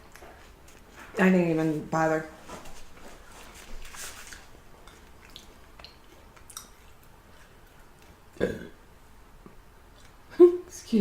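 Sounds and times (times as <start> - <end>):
person chewing: 3.2 - 8.5, 9.4 - 10.2.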